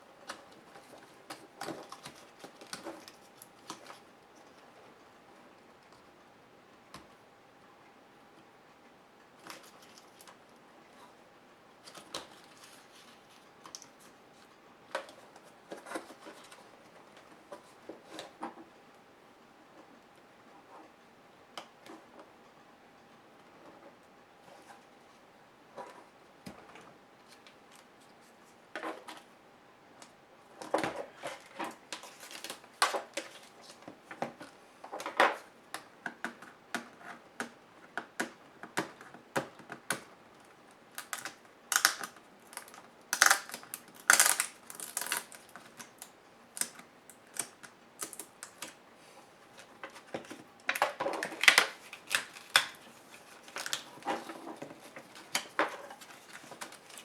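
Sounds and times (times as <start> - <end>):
laptop parts clicking and rattling: 41.0 - 48.8.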